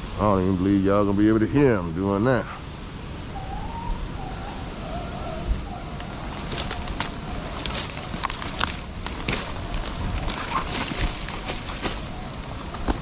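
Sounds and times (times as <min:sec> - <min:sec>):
wind noise: 0:00.0 - 0:13.0
distant hounds baying: 0:02.3 - 0:08.6, 0:09.5 - 0:13.0
rustling crackles: 0:04.0 - 0:13.0.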